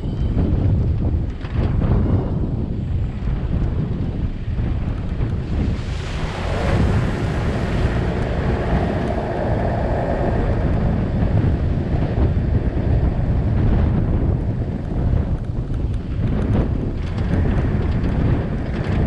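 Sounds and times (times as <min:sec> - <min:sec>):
steady low rumble: 0:00.0 - 0:19.0
wind buffeting microphone: 0:00.0 - 0:19.0.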